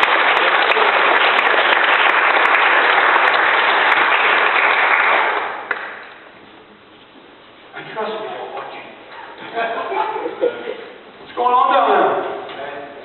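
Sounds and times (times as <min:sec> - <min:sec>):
crowd clapping: 0:00.0 - 0:06.3.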